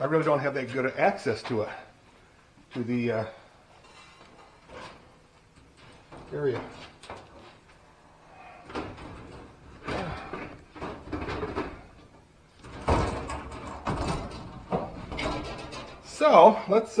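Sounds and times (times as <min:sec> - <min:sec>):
knocks and scrapes of handling: 0:03.7 - 0:17.0.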